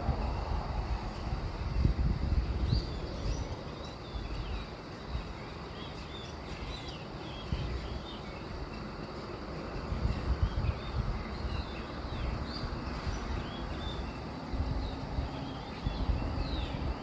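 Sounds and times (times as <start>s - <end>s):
steady low rumble: 0.0s - 17.0s
small birds chirping: 1.1s - 17.0s.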